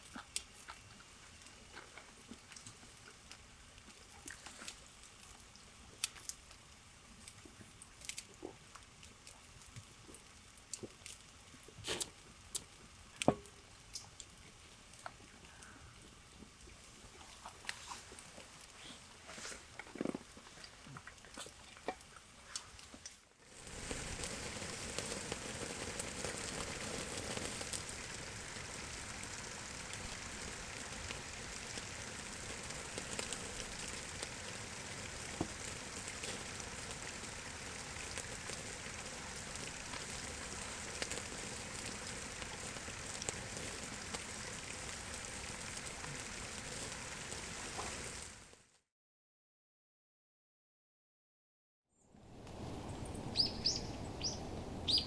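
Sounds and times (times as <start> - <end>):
steady rain falling: 23.5 - 48.6, 52.3 - 55.0
sharp raindrop ticks: 23.6 - 48.3.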